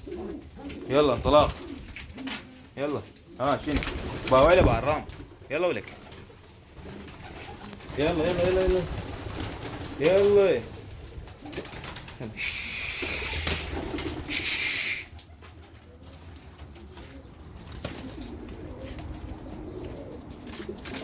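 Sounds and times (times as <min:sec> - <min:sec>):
pigeons cooing: 0:00.0 - 0:21.0
loud hissing bursts: 0:12.4 - 0:15.2.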